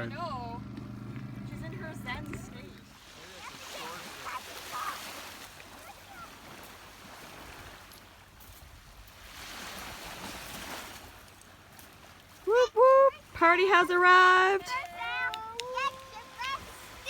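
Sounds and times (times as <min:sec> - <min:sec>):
gentle waves washing: 0:00.0 - 0:17.0
wind: 0:00.0 - 0:17.0
faint voices: 0:13.1 - 0:17.0.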